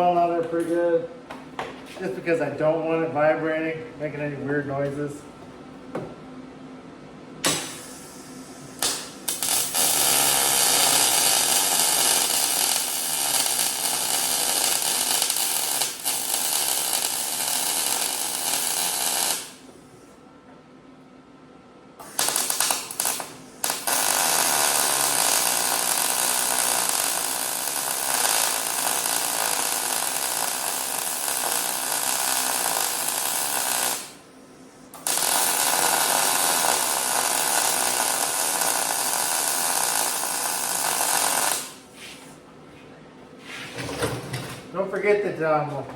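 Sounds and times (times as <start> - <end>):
welder crackling hiss: 7.5 - 19.6, 22.0 - 34.1, 35.0 - 41.8.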